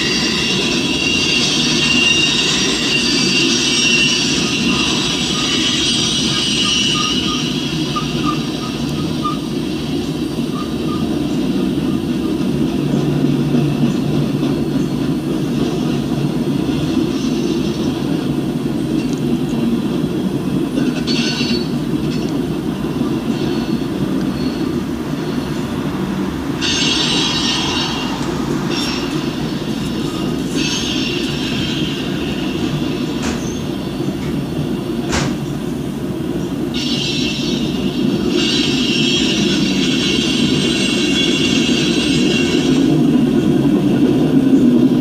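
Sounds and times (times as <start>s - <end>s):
high-pitched wheel squeal: 0.0s - 12.0s, 26.6s - 34.0s, 36.7s - 43.0s
freight train wheels rumbling: 0.0s - 45.0s.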